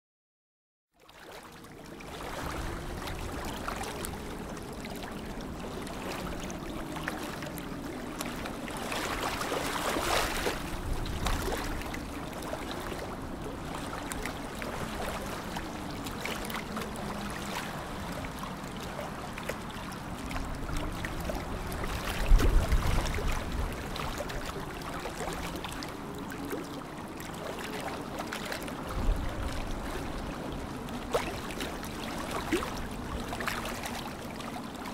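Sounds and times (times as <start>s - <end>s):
water lapping and trickling: 0.9s - 34.9s.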